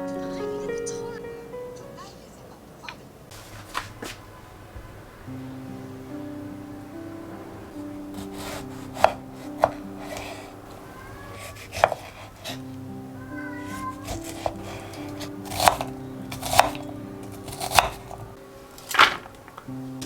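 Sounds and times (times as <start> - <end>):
soft background music: 0.0 - 2.8, 4.3 - 20.0
knife chopping on cutting board: 8.2 - 10.5, 11.4 - 12.6, 13.7 - 18.2.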